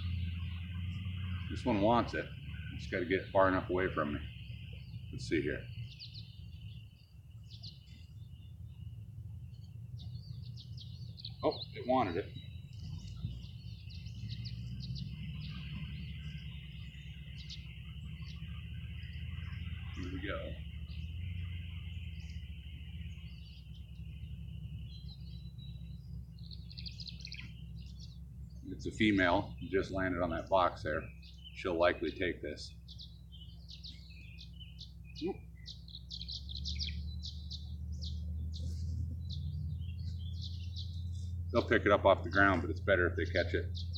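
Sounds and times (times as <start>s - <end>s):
low steady rumble: 0.0s - 43.9s
swallows chirping: 0.0s - 43.9s
low rumble: 35.7s - 43.9s.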